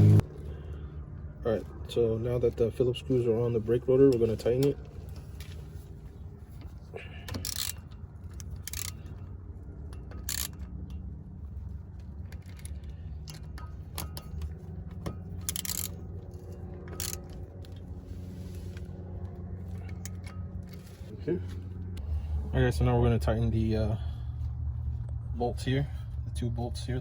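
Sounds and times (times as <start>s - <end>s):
low hum: 0.0s - 27.0s
metallic tool clicks: 15.4s - 16.0s.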